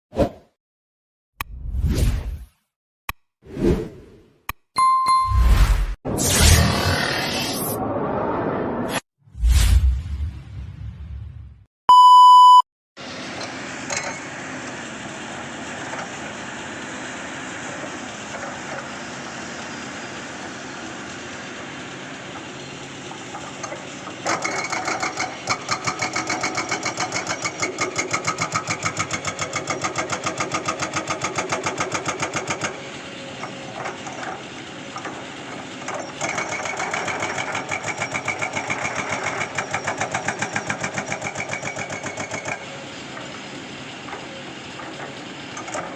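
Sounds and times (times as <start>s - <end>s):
short beep: 4.8s - 5.7s, 11.9s - 12.6s
excavator diesel engine running: 13.1s - 28.0s, 32.7s - 45.9s
hydraulic rock breaker hammering: 23.2s - 45.9s.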